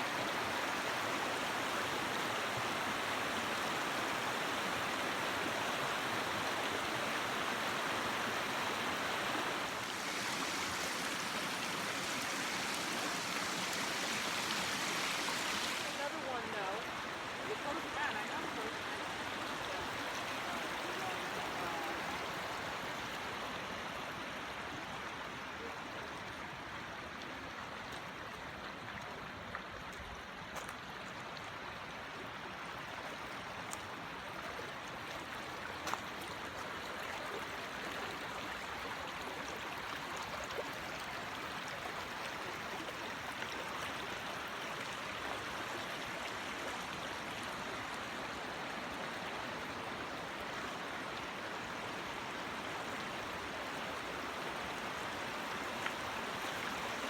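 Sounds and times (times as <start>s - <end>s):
water running over rocks: 0.0s - 57.0s.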